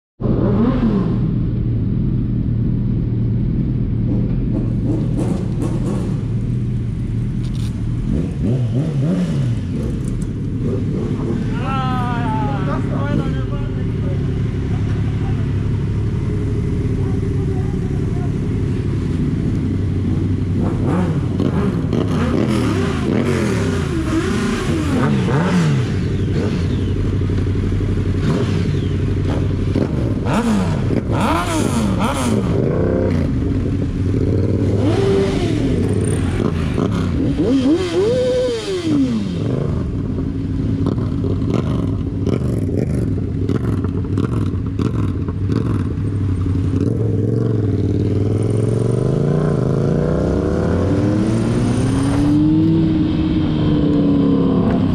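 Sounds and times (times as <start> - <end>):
vehicle engines revving: 0.2 - 54.9
engine idling rumble: 11.8 - 21.4.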